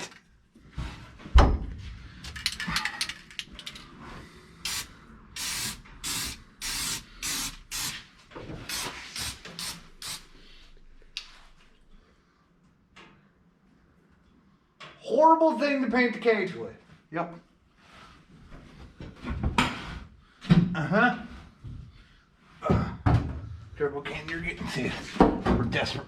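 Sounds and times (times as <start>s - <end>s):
spray paint can hissing: 4.7s - 10.4s.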